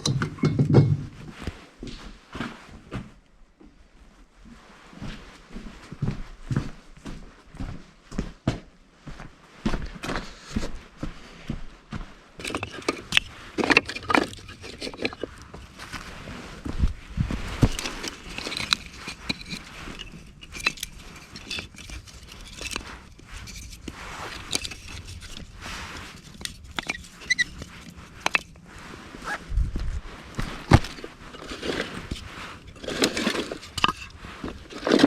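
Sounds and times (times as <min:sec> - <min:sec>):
camping gear being handled: 0:12.4 - 0:35.0.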